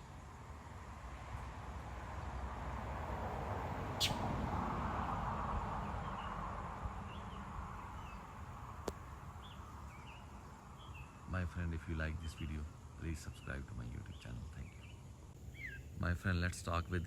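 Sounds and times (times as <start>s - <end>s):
vehicle passing: 0.5s - 11.5s
bird chirping: 3.9s - 4.3s, 5.8s - 6.4s, 7.0s - 8.4s, 9.3s - 11.2s, 13.4s - 16.1s.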